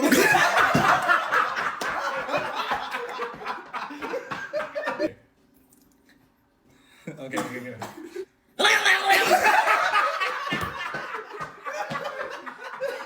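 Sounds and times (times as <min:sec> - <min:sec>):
people laughing: 0:00.0 - 0:05.2, 0:08.6 - 0:13.0.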